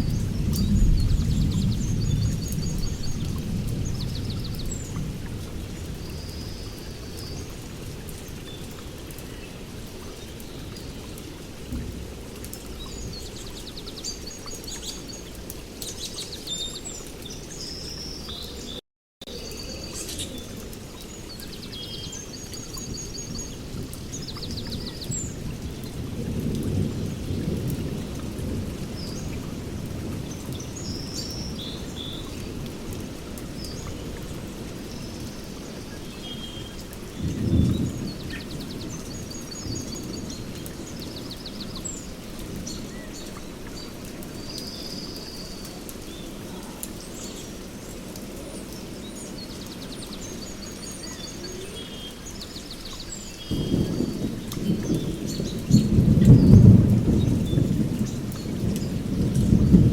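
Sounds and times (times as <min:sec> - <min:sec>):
rolling thunder: 0:00.0 - 0:06.8, 0:23.3 - 0:31.9, 0:37.1 - 0:43.0, 0:53.4 - 0:59.9
rain: 0:00.0 - 0:59.9
birds chirping: 0:33.6 - 0:59.9.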